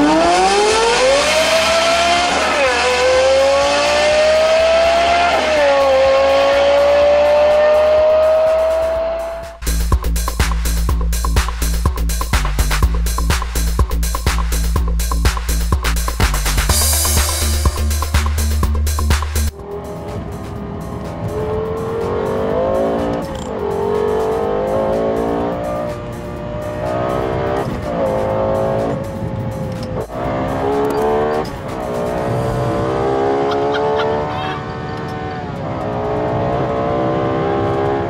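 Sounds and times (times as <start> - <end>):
car engine accelerating hard: 0.0 - 9.6, 18.9 - 38.0.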